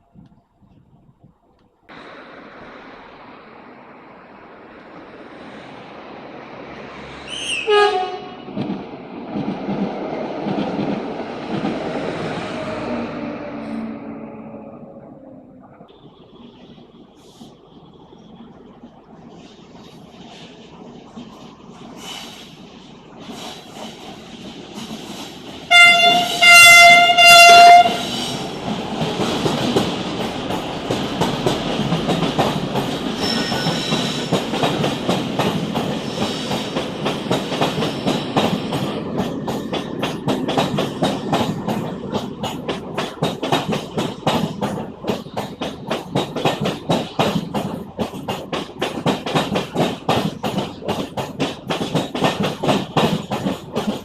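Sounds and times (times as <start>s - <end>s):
train rolling noise: 0.0s - 54.0s
train horn blast: 7.3s - 8.6s, 25.7s - 28.2s
wheels clicking over rail joints: 15.2s - 54.0s.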